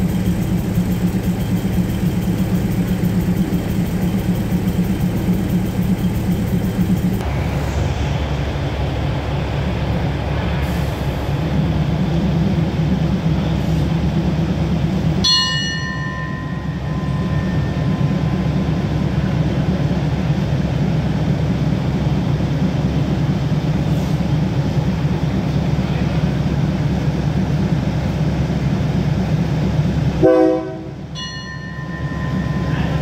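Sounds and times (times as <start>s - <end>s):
diesel train idling: 0.0s - 33.0s
bell ringing: 15.2s - 18.8s, 31.2s - 33.0s.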